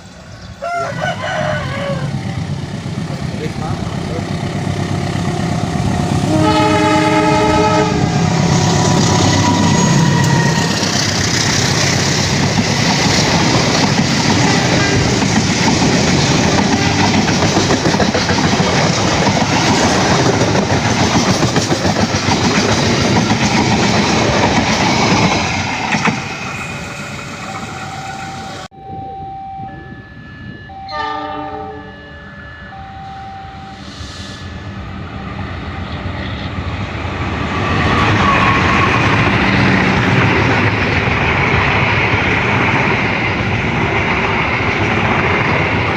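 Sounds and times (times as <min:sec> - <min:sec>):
train rumble and wheel clatter: 0:00.0 - 0:32.0, 0:33.0 - 0:45.9
train horn: 0:06.2 - 0:11.0, 0:30.7 - 0:32.1.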